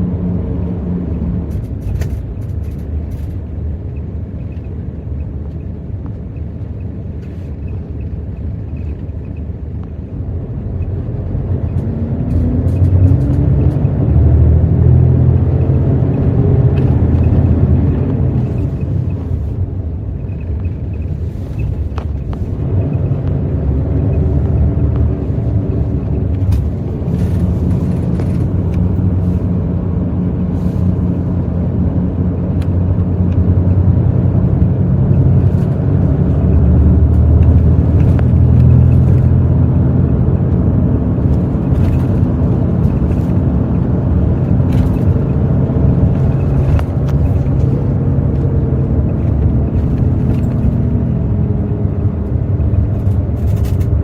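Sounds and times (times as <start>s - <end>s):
bus diesel engine running: 0.0s - 54.0s
light clicks and rattles: 1.5s - 3.5s, 52.2s - 54.0s.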